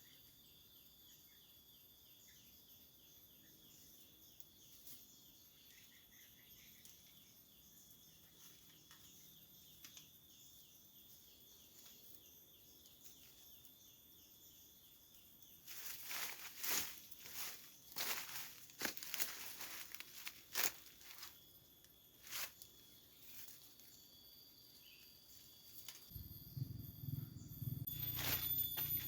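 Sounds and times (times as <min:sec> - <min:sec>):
insects droning: 0:00.0 - 0:29.0
loud rustling and crunching: 0:15.7 - 0:21.4.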